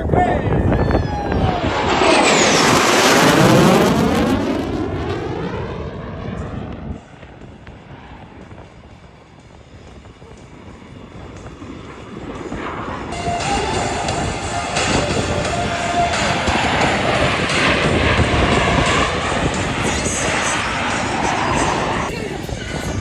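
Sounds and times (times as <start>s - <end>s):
jet aircraft flying past: 0.0s - 23.0s.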